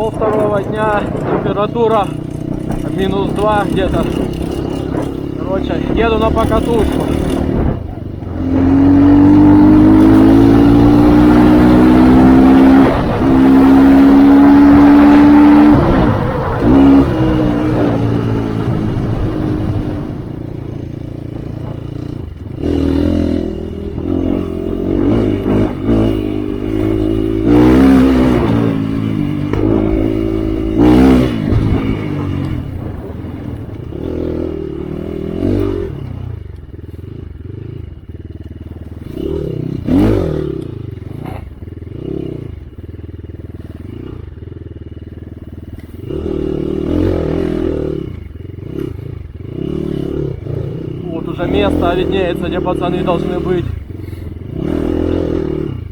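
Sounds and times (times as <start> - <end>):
bike clattering over rough ground: 0.0 - 8.2
dirt bike engine revving: 0.0 - 55.9.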